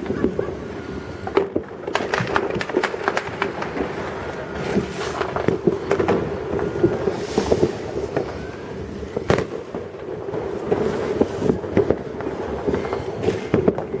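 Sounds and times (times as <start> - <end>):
fireworks bangs and cracks: 0.0 - 14.0.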